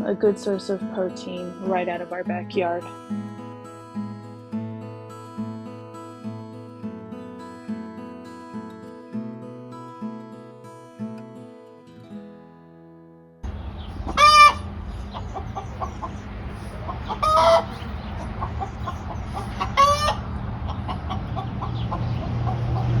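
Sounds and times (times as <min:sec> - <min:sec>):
chickens clucking: 0:13.5 - 0:23.0
chicken squawks: 0:13.8 - 0:23.0.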